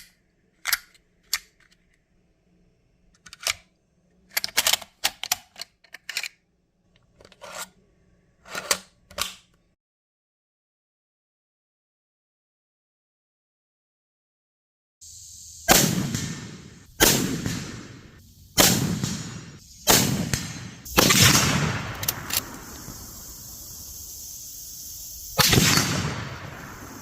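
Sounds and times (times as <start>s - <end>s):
rifle shots: 15.7s - 23.4s, 25.4s - 27.0s.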